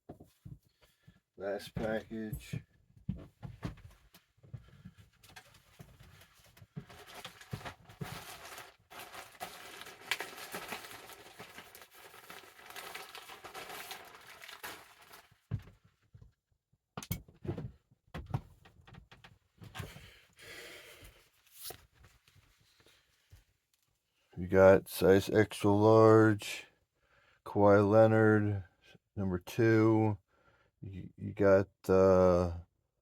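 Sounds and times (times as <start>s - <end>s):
wrapping crinkling: 6.8s - 15.5s
package being torn open: 7.0s - 15.3s.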